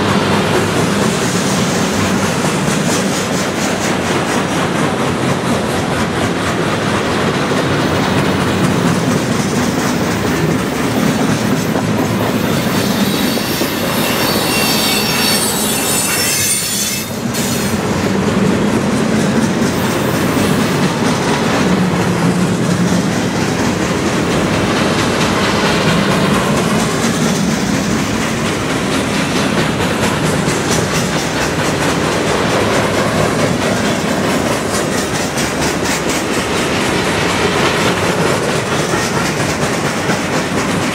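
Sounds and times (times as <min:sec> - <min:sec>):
freight train wheels rumbling: 0:00.0 - 0:40.9
high wheel squeal: 0:12.3 - 0:17.8.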